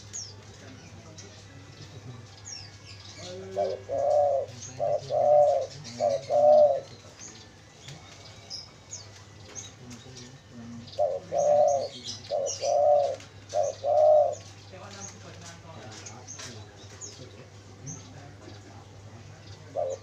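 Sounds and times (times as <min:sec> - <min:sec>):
small birds chirping: 0:00.0 - 0:20.0
dove cooing: 0:03.2 - 0:07.2, 0:10.5 - 0:14.6, 0:19.5 - 0:20.0.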